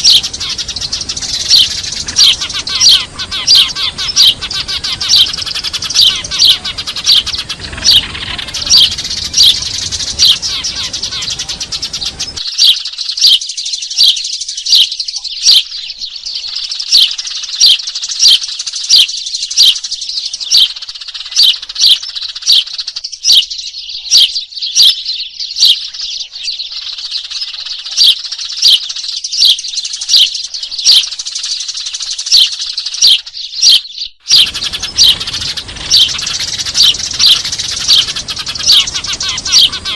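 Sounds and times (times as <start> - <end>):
sparrows chirping in a flock: 0.0 - 39.9.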